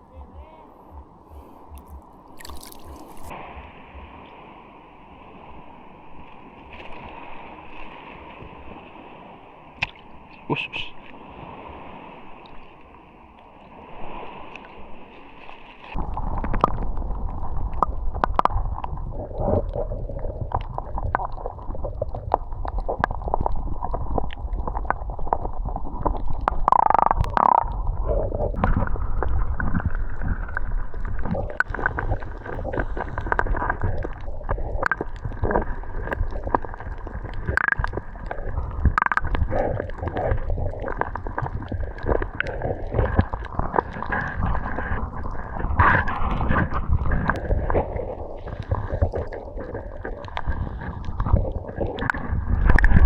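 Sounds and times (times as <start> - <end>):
water sloshing and gurgling: 0.0 - 53.0
small splashes and knocks: 1.7 - 3.4.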